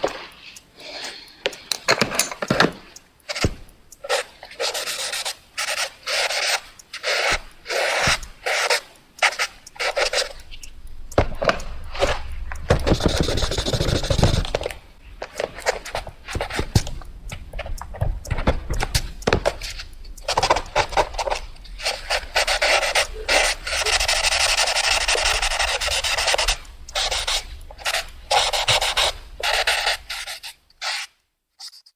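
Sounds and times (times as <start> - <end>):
pencil scribbling on paper: 21.0 - 31.1.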